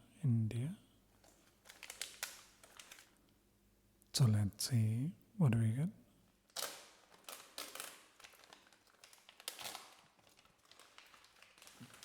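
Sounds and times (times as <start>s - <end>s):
packaging crinkling and rustling: 1.2s - 3.2s, 6.4s - 12.0s.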